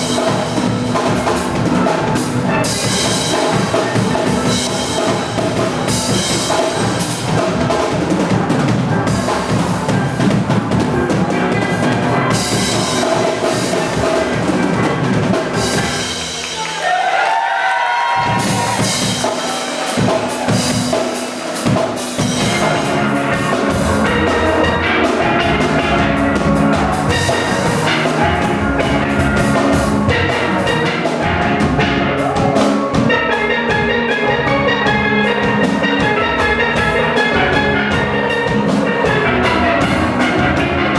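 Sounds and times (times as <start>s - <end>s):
steel pans melody: 0.0s - 16.8s, 18.3s - 40.9s
bass: 0.0s - 17.3s, 18.0s - 40.9s
drum kit: 0.0s - 40.9s.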